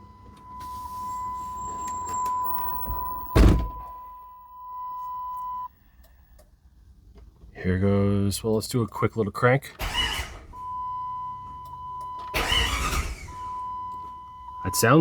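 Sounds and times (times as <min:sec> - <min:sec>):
high warning tone: 0:00.0 - 0:05.7, 0:10.8 - 0:15.0
heavy thunk: 0:03.3 - 0:03.9.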